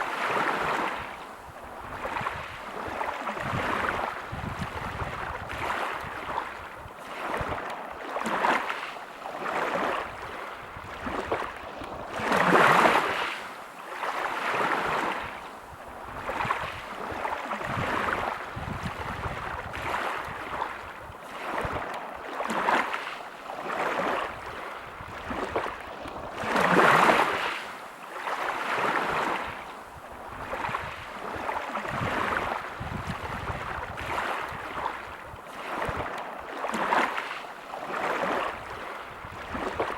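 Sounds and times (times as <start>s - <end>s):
waves washing over pebble beach: 1.9s - 15.4s, 16.2s - 29.6s, 30.4s - 39.9s.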